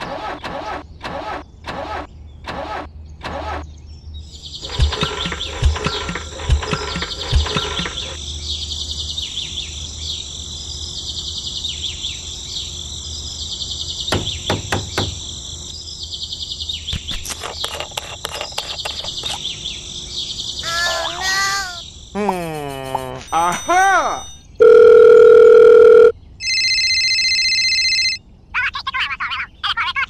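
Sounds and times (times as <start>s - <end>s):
birds calling: 0.0s - 24.4s
insects chirping: 4.2s - 24.6s.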